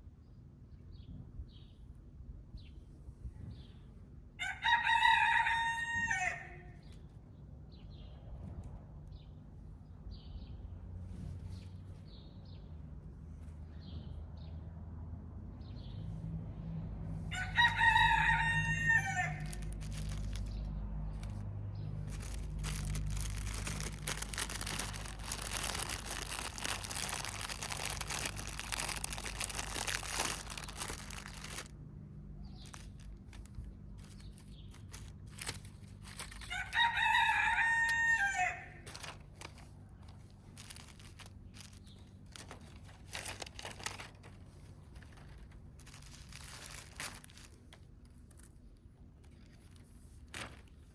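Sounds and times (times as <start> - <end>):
constant low hum: 0.0 - 50.9
rooster crowing: 4.4 - 6.8, 17.3 - 19.7, 36.4 - 38.9.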